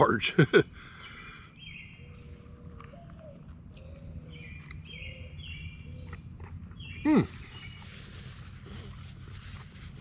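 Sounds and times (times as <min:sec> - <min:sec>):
insects droning: 0:00.0 - 0:10.0
bird chirping: 0:00.8 - 0:10.0
dove cooing: 0:02.0 - 0:06.1.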